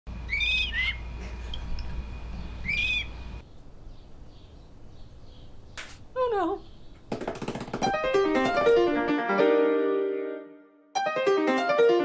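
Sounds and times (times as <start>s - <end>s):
low steady hum: 0.1s - 6.9s
bird whistling: 0.3s - 1.0s, 2.4s - 3.4s.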